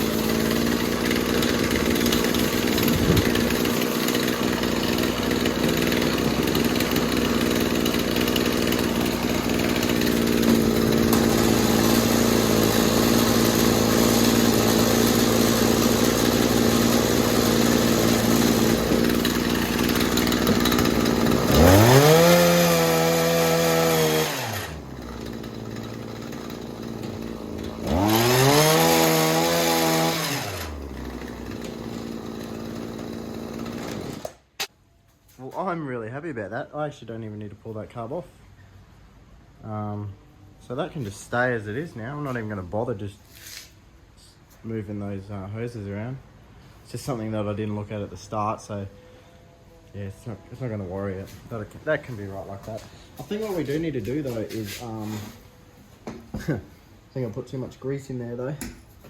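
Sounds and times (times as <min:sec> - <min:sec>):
hedge trimmer engine revving: 0:00.0 - 0:34.7.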